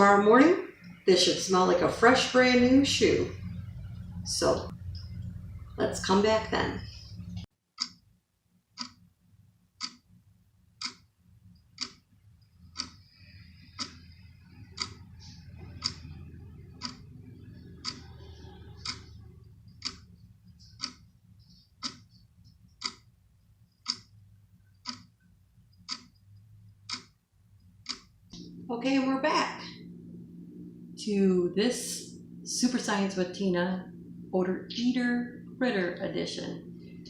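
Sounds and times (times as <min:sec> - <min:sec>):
low hum: 0:00.0 - 0:07.5, 0:09.1 - 0:37.0
clock ticking: 0:06.8 - 0:08.0, 0:08.7 - 0:09.1, 0:09.8 - 0:10.1, 0:10.8 - 0:28.4.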